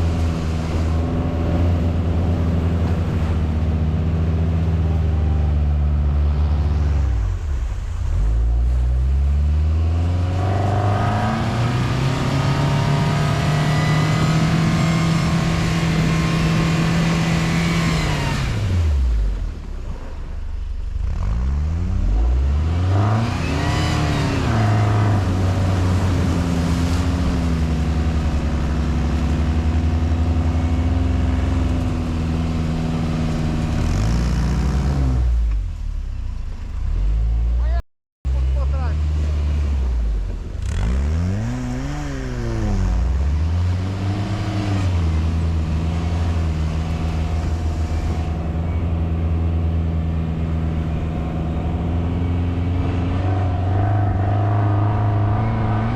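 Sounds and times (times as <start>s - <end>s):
quad bike engine revving: 9.4s - 19.0s, 21.0s - 35.4s, 38.8s - 55.9s.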